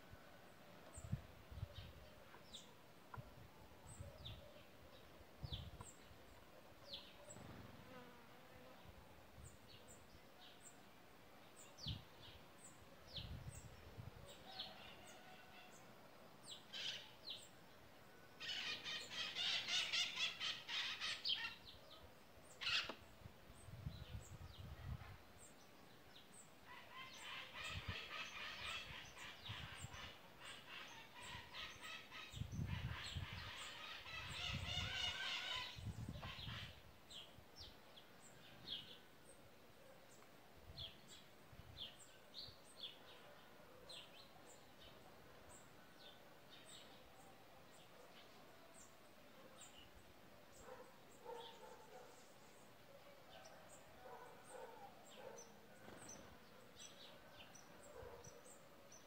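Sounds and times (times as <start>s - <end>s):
birds chirping: 25.4s - 52.8s, 53.4s - 59.0s.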